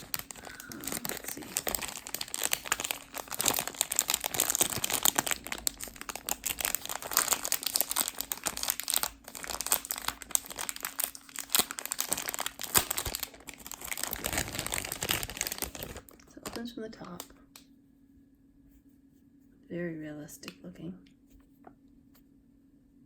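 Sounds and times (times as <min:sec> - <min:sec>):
plastic packaging crackling: 0:00.0 - 0:17.6.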